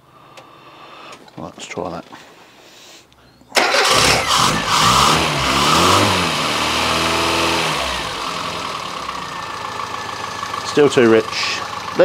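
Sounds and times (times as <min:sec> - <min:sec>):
car engine starting and revving: 0:03.6 - 0:10.6.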